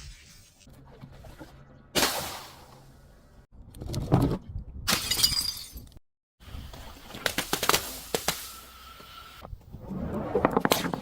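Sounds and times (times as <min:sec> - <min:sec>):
glass shattering crash: 0:04.9 - 0:05.9.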